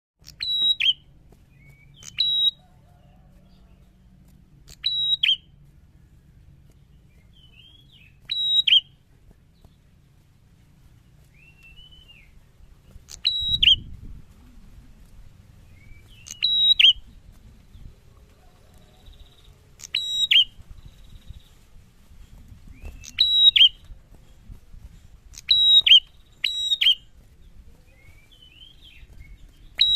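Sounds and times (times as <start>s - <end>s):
sharp high whistled bird calls: 0.2s - 2.7s, 4.7s - 5.5s, 7.3s - 9.0s, 11.3s - 12.4s, 13.1s - 13.9s, 15.7s - 17.1s, 18.8s - 21.5s, 22.7s - 23.8s, 25.3s - 27.1s, 27.9s - 29.9s
soft bird twittering: 0.2s - 10.2s, 11.0s - 29.9s.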